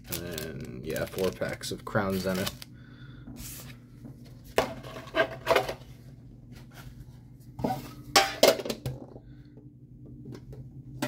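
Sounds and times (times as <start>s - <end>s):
packs rustling: 0.0s - 2.7s.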